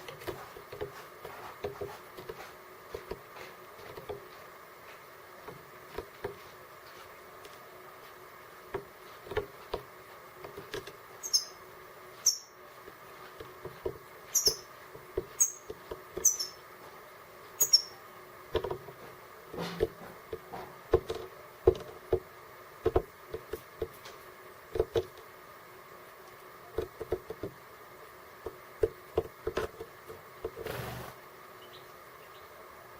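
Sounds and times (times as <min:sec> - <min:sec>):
birds pecking at seed: 0:00.0 - 0:16.9
high falling bird chirps: 0:11.2 - 0:11.6, 0:12.2 - 0:12.6, 0:14.3 - 0:14.7, 0:15.4 - 0:16.6, 0:17.6 - 0:18.0.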